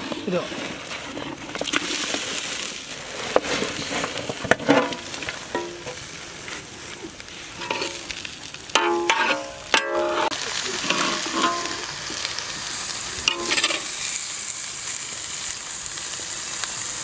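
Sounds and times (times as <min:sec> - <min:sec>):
chicken sizzling in hot oil: 0:00.0 - 0:17.0
metal ladle scraping: 0:07.6 - 0:08.1, 0:08.8 - 0:11.8, 0:13.3 - 0:13.9.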